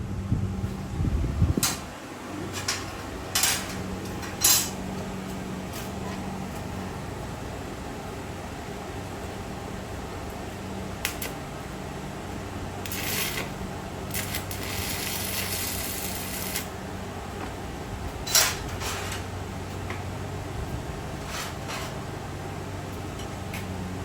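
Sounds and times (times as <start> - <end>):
steady low hum: 0.0 - 24.0
metal clanks and scraping: 1.6 - 4.8, 5.7 - 6.7, 12.9 - 13.5, 18.2 - 19.3, 21.2 - 22.1.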